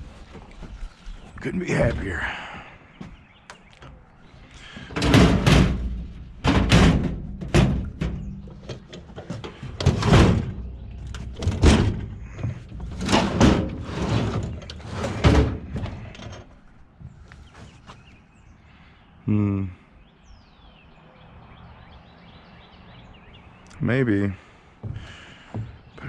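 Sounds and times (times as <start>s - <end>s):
metal desk banging and scraping: 4.7s - 16.5s.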